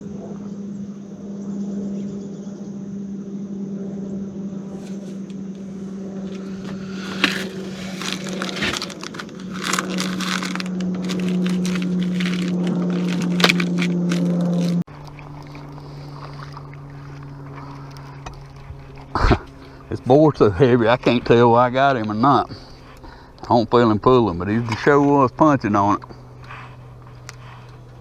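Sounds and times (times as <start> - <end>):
low motor hum: 0.0 - 28.0
clicks crackles and scrapes: 6.6 - 15.7.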